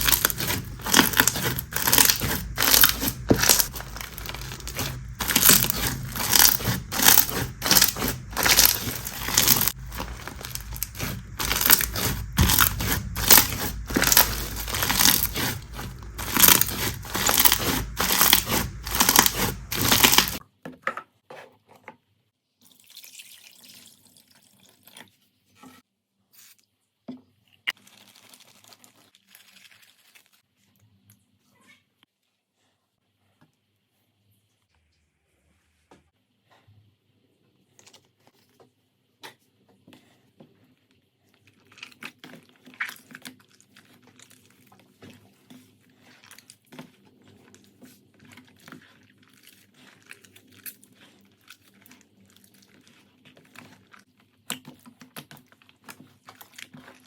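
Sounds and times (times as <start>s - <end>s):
slime crackling and popping: 0.0s - 20.4s.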